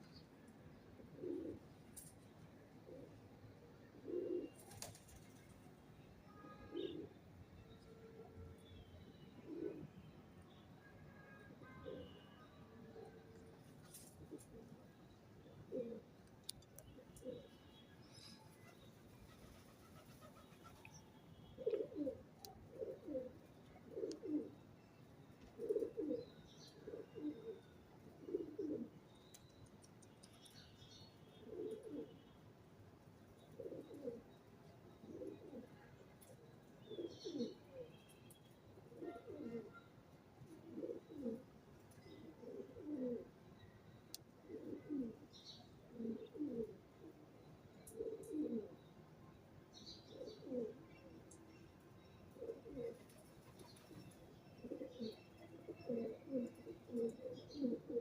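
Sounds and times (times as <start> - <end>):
pigeon cooing: 21.6 - 23.3, 23.9 - 24.5, 25.6 - 26.2, 28.2 - 28.9, 33.6 - 34.2, 38.9 - 39.8, 40.6 - 41.4, 42.2 - 43.3, 44.5 - 45.2, 45.9 - 46.8, 47.9 - 48.7, 50.1 - 50.8, 52.4 - 53.1, 55.8 - 58.0
small birds chirping: 36.8 - 38.5.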